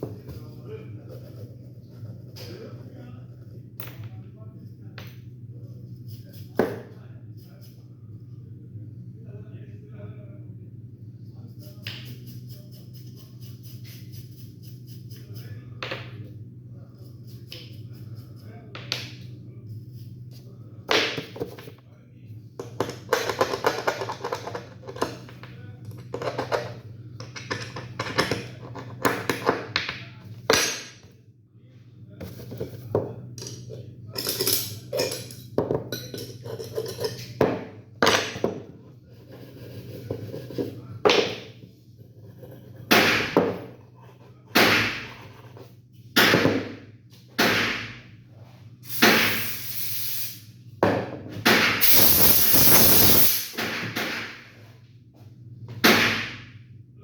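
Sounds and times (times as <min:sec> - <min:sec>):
spray hisses: 0:51.8 - 0:53.5.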